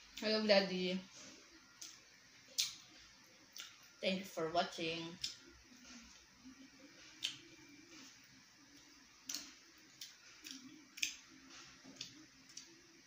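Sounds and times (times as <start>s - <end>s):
faint low hum: 0.0s - 13.0s
mouths chewing food: 7.0s - 13.0s.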